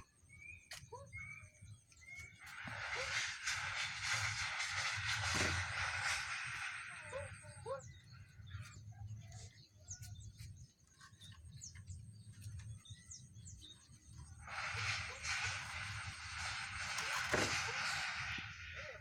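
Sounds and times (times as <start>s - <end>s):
small birds chirping: 0.0s - 3.3s, 6.0s - 19.0s
metal sheet rattling clatter: 2.5s - 7.4s, 14.4s - 18.9s.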